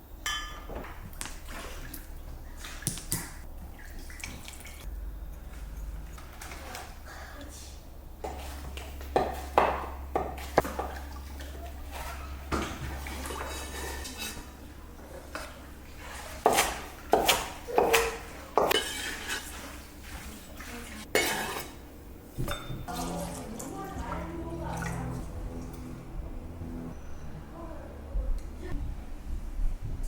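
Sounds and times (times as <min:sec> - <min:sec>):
low steady hum: 0:00.0 - 0:18.8, 0:19.4 - 0:30.0
dishes and utensils clattering: 0:00.2 - 0:01.7, 0:08.2 - 0:21.8, 0:22.4 - 0:24.2.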